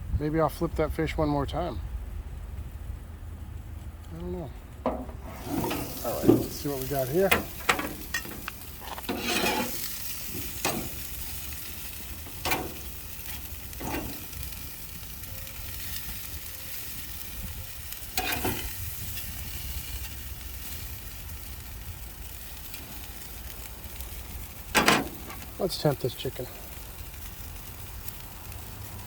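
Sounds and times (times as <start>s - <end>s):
food sizzling on a grill: 4.2s - 29.0s
scraping and handling noises: 4.8s - 11.5s, 12.2s - 14.4s, 18.2s - 18.8s, 24.8s - 25.6s.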